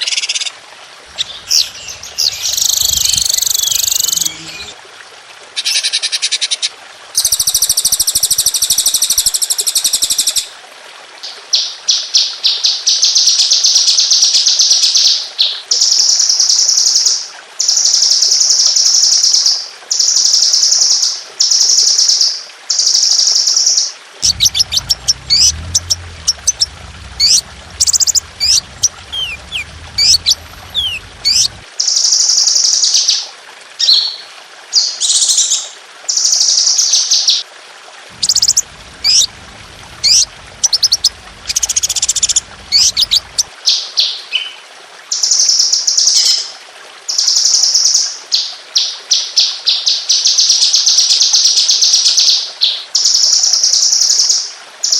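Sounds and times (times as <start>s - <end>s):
low hum: 1.1s - 4.8s, 24.2s - 31.7s, 38.1s - 43.5s
sharp descending bird notes: 1.1s - 4.8s, 24.2s - 31.6s
songbird trills: 1.1s - 4.8s, 24.2s - 31.6s, 38.2s - 43.5s.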